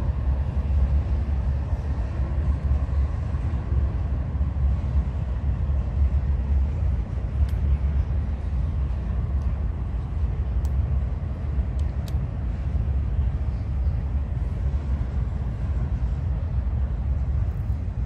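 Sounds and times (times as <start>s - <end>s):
freight train rumbling past: 0.0s - 18.0s
sharp clicks of train: 4.6s - 18.0s.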